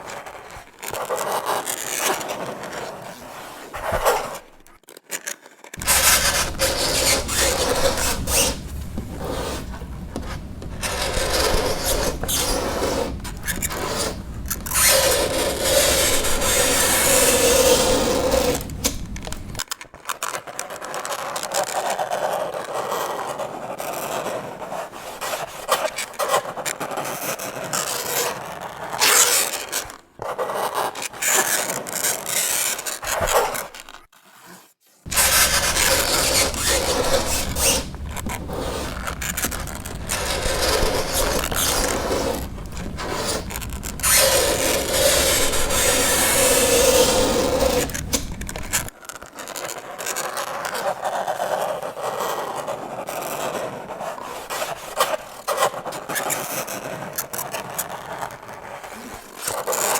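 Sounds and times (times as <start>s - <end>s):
fingernails scraping chalkboard: 5.8s - 19.6s, 29.4s - 48.9s
held squeal: 5.8s - 19.6s, 35.1s - 48.9s.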